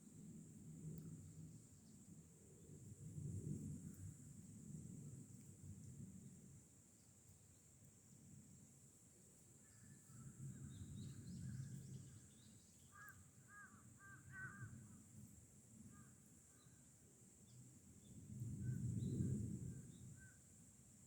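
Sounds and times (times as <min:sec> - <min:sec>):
distant bird calling: 0:12.9 - 0:14.7.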